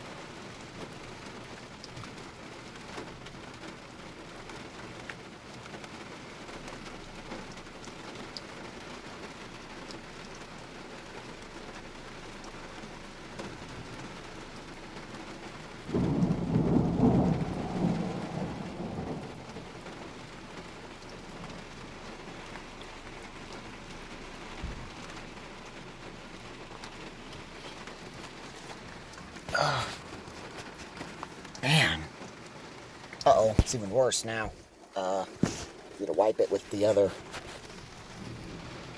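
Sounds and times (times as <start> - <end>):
heavy rain falling: 0.0 - 38.9
thunder clap rumbling: 15.8 - 21.8.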